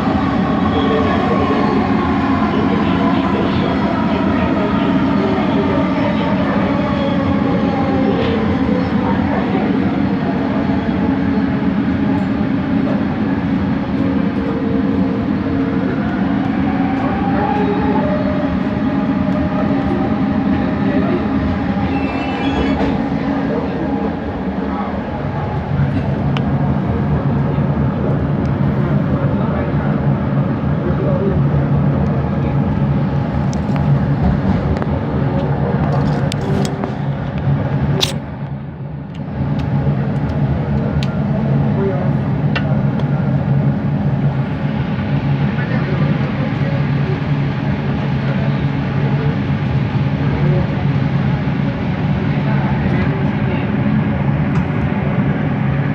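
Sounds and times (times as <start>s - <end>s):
metro train rolling noise: 0.0s - 55.9s
sharp click: 38.0s - 38.2s.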